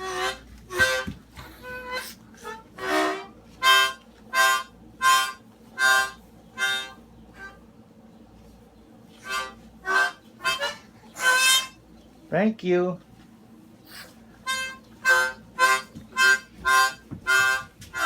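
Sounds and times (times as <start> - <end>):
harmonica chord blasts: 0.0 - 1.1, 1.7 - 7.6, 9.2 - 11.8, 13.9 - 18.0.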